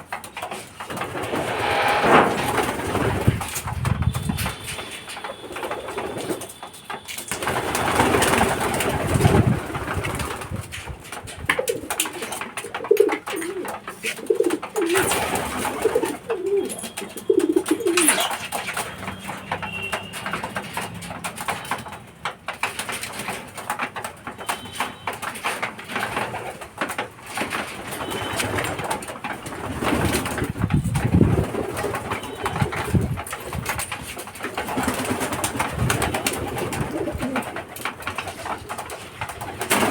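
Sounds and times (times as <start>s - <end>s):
pigeons cooing: 11.5s - 18.5s, 36.0s - 38.8s.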